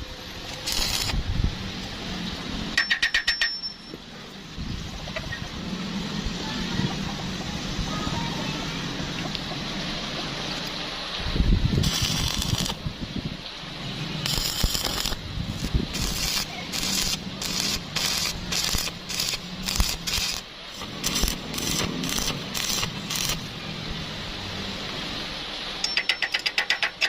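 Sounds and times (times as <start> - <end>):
welding arc crackling: 0.0 - 1.2, 11.8 - 12.9, 14.2 - 23.6.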